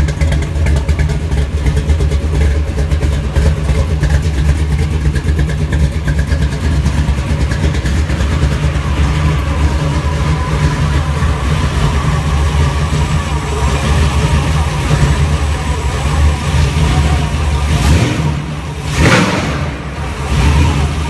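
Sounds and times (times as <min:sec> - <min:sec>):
engine idling with pulsing rumble: 0:00.0 - 0:21.0.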